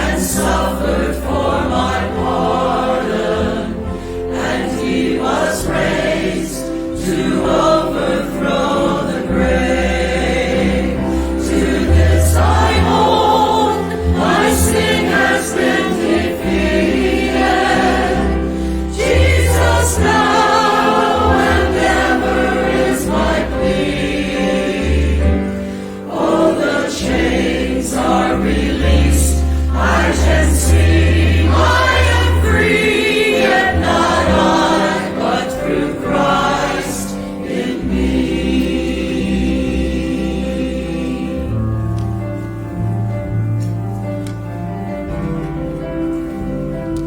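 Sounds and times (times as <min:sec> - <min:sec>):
choir singing a hymn: 0:00.0 - 0:44.1.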